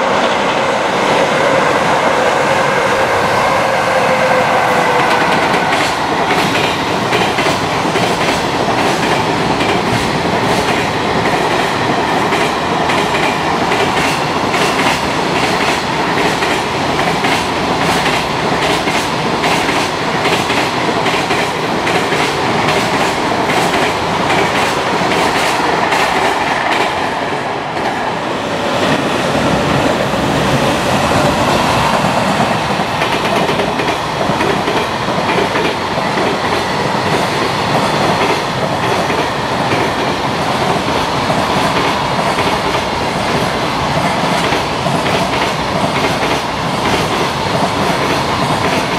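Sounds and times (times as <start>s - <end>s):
freight train wheels clattering: 4.2s - 28.0s.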